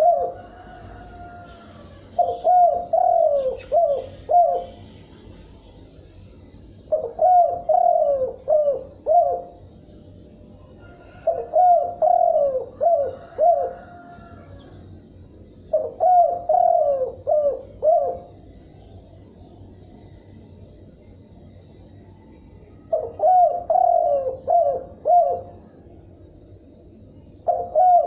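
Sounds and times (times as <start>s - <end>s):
dove cooing: 0.0s - 4.8s, 6.8s - 9.8s, 10.6s - 14.8s, 15.5s - 18.4s, 22.8s - 25.8s, 27.3s - 28.0s.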